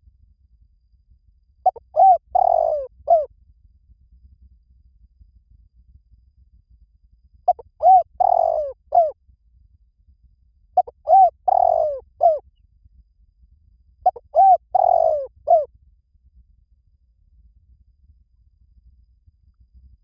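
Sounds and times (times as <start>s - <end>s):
dove cooing: 1.6s - 3.3s, 7.5s - 9.2s, 10.8s - 12.4s, 14.1s - 15.7s.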